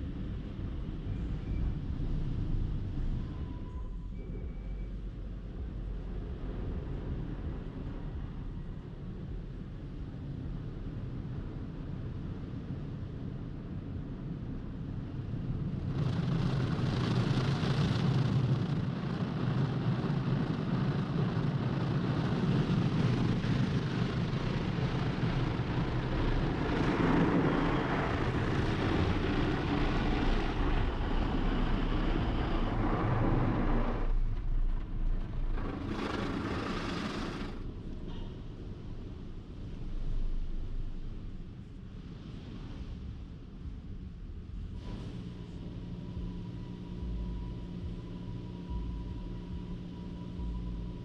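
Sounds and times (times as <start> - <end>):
car wash equipment rushing: 24.4 - 37.7.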